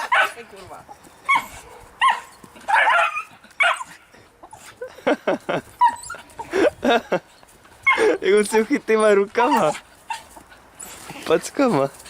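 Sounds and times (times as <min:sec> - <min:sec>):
dog barking and yipping: 0:00.0 - 0:00.5, 0:01.2 - 0:04.8, 0:05.8 - 0:06.6, 0:07.8 - 0:11.2.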